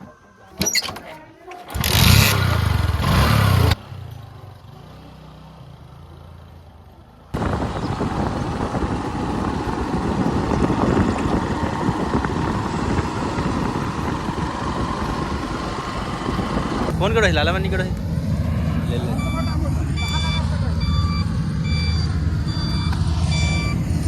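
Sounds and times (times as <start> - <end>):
harvesting machine engine: 1.6 - 3.8, 7.4 - 24.0.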